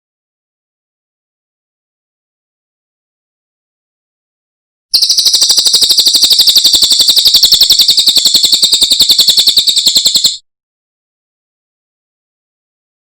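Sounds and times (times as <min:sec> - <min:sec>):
songbird trilling: 0:05.0 - 0:10.4.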